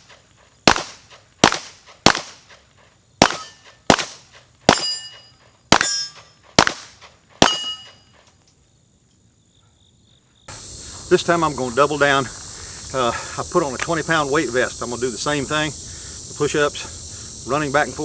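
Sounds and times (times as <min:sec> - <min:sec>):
handgun shots: 0:00.7 - 0:02.4, 0:03.2 - 0:08.0
metallic ringing: 0:03.2 - 0:03.9, 0:04.7 - 0:06.4, 0:07.4 - 0:08.1.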